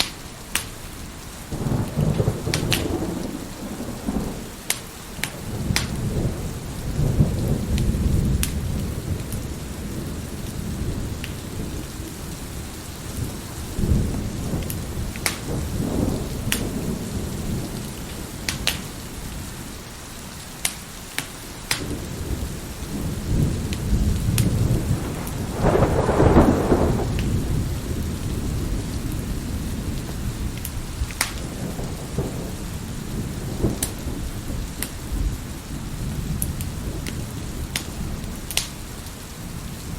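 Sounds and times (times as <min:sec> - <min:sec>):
wood fire crackling: 0:00.0 - 0:06.4, 0:12.8 - 0:17.0, 0:17.7 - 0:19.4, 0:20.4 - 0:32.1, 0:36.2 - 0:39.8
heavy rain: 0:00.0 - 0:39.9
rolling thunder: 0:01.5 - 0:19.4, 0:21.8 - 0:38.7.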